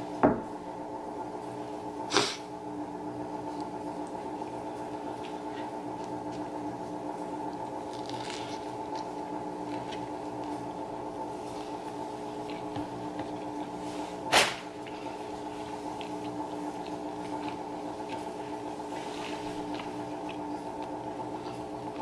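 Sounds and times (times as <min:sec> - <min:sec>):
steady background hum: 0:00.0 - 0:22.0
person chewing: 0:07.4 - 0:10.7, 0:11.4 - 0:13.8, 0:14.8 - 0:22.0.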